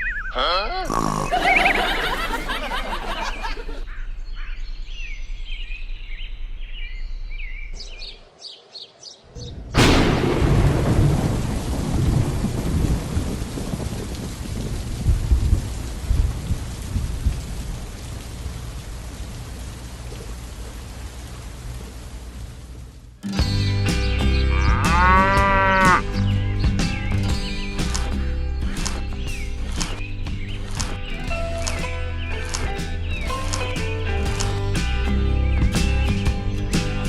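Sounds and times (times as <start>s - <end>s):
rain-like hiss: 7.8s - 23.3s
low rumbles: 9.3s - 37.0s.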